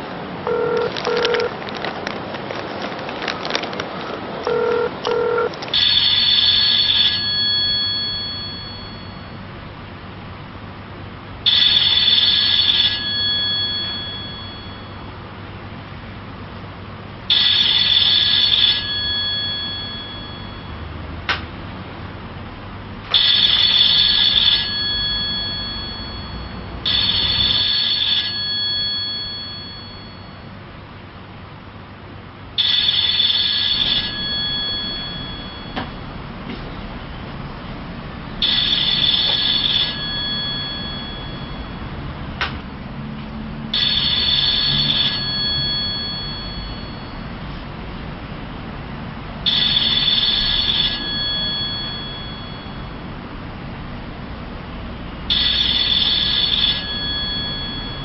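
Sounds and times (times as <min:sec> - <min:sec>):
telephone ringing: 0:00.4 - 0:01.9, 0:04.4 - 0:09.4, 0:11.4 - 0:15.1, 0:17.3 - 0:20.8, 0:23.1 - 0:30.6, 0:32.6 - 0:36.2, 0:38.4 - 0:42.0, 0:43.7 - 0:47.4, 0:49.4 - 0:53.1, 0:55.3 - 0:58.0
telephone keypad beeps: 0:00.5 - 0:01.5, 0:04.4 - 0:09.2, 0:11.5 - 0:15.0, 0:23.2 - 0:30.4, 0:32.6 - 0:36.0, 0:38.5 - 0:41.8, 0:49.5 - 0:53.0, 0:55.4 - 0:58.0.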